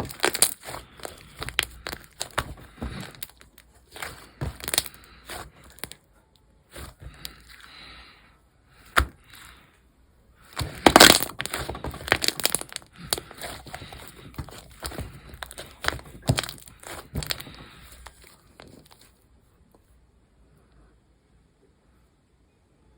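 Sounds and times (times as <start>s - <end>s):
slime squishing and popping: 0.0s - 6.0s, 6.7s - 7.8s, 8.8s - 9.6s, 10.5s - 19.1s.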